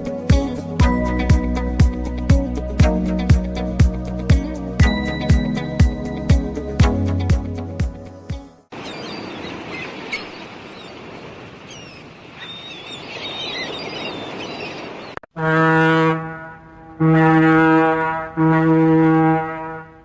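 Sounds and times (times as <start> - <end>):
dolphins whistling: 8.7 - 15.2
underwater noise: 8.7 - 15.2
deep horn blasts: 15.4 - 20.0.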